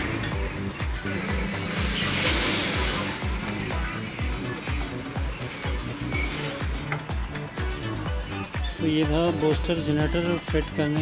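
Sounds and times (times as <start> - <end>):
music with deep beat: 0.0 - 11.0.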